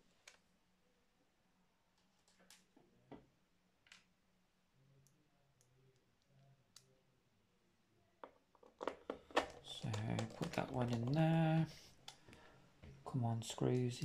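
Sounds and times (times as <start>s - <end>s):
small parts clicking and tapping: 8.2s - 12.4s.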